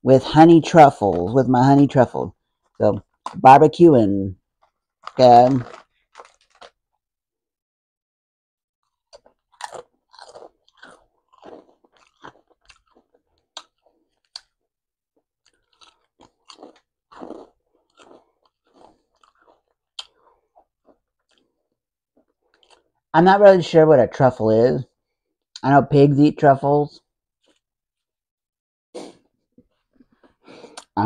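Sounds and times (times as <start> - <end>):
crunching potato chips: 4.6 - 7.0, 8.8 - 23.1, 27.4 - 27.7.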